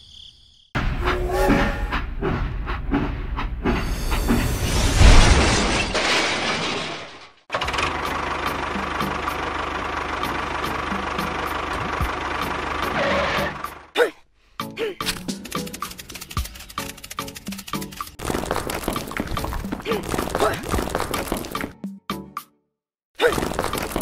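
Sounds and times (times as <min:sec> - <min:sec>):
toy train crashing: 0:04.6 - 0:08.0, 0:15.1 - 0:21.6
small engine running: 0:07.5 - 0:13.9, 0:15.2 - 0:21.6.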